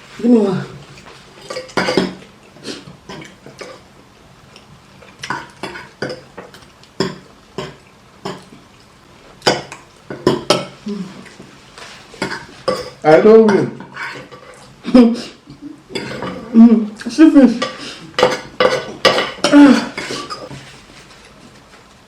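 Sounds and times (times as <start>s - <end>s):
cutlery clinking on plates: 1.4s - 2.2s, 9.4s - 10.8s, 12.2s - 14.7s, 15.9s - 16.5s, 17.6s - 20.6s.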